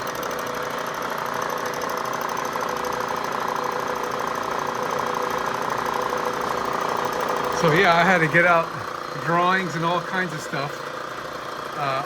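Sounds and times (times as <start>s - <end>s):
fine rapid ticking: 0.0s - 12.0s
milling machine whirring: 0.0s - 12.0s.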